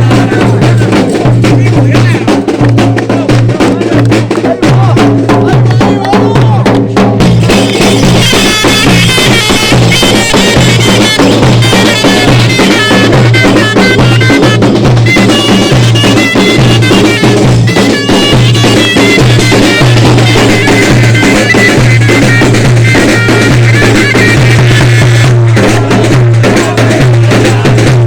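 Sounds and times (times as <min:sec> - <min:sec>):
drums beating: 0:00.0 - 0:28.0
reedy wind instrument melody: 0:07.2 - 0:28.0.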